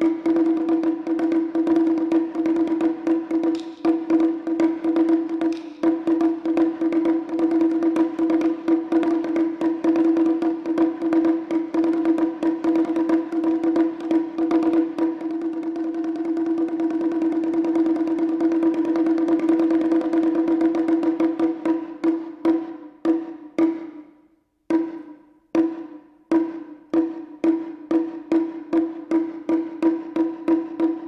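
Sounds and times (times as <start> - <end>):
taiko drums striking: 0.0 - 24.1, 24.7 - 31.0.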